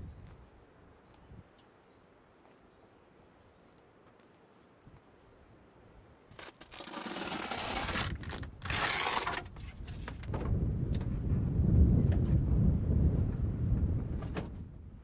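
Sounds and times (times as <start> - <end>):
wind buffeting microphone: 9.4 - 15.0
strong wind gusting: 9.5 - 15.0.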